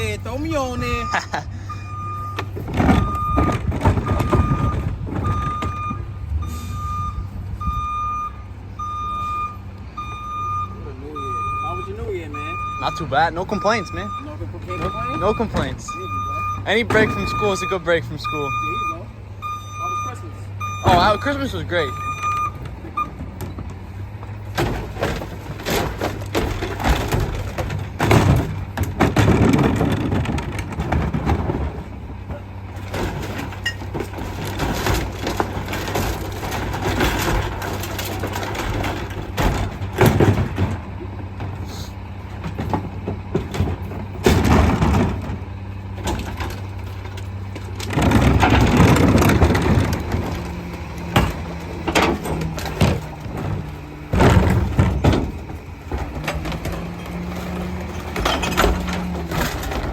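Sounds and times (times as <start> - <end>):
trash cracking and crunching: 0.0 - 8.2, 11.1 - 59.9
truck backup alarm beeping: 0.0 - 23.7
diesel engine rumble: 0.0 - 59.9
loud clattering: 24.5 - 41.7, 42.3 - 59.9.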